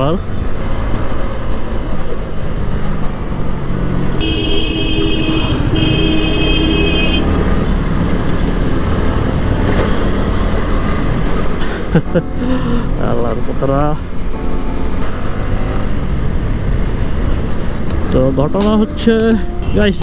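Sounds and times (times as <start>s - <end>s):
motorcycle engine running: 3.4s - 11.6s
vehicle horn blasts: 4.2s - 8.1s
wind rushing on microphone: 15.9s - 19.9s.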